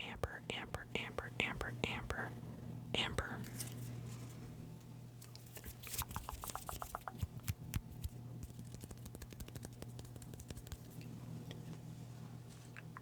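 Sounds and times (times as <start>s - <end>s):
paper slips crackling: 5.6s - 10.9s.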